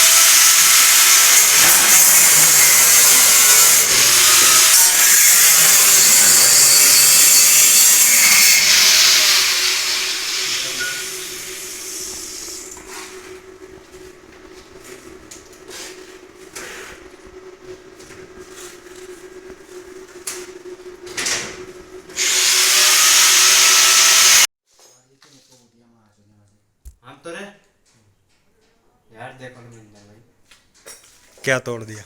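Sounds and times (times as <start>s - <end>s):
angle grinder on metal: 0.0s - 12.8s, 22.2s - 24.5s
grinder winding down: 0.0s - 12.9s, 22.1s - 24.5s.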